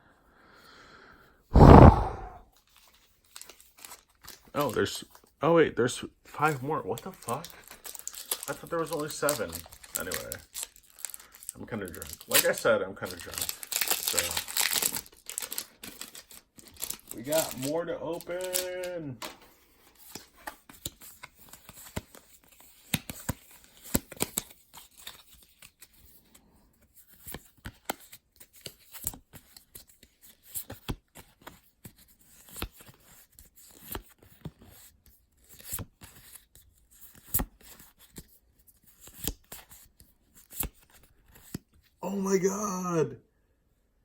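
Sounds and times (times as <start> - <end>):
card packs torn open: 13.2 - 18.9.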